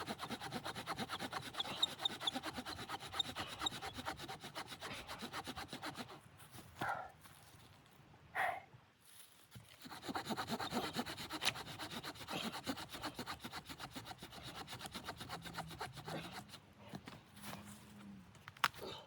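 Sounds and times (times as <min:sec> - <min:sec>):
hand saw cutting wood: 0:00.0 - 0:06.2, 0:09.6 - 0:16.7.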